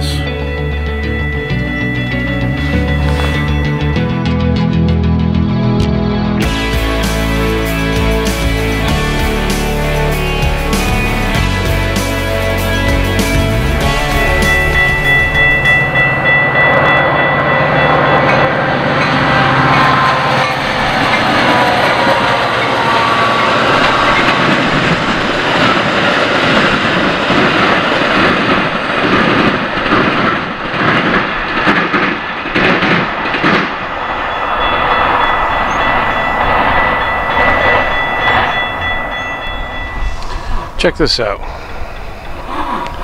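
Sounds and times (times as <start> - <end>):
crossing warning bell ringing: 0.0 - 4.5, 6.4 - 30.7, 33.0 - 42.8
train passing with low drone: 0.0 - 43.0
train wheels clattering over rails: 13.0 - 40.5.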